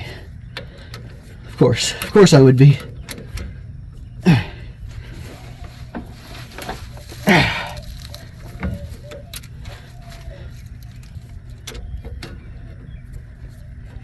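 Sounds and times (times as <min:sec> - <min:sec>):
steady low hum: 0:00.0 - 0:14.0
person grunting: 0:04.2 - 0:04.7, 0:07.2 - 0:07.9.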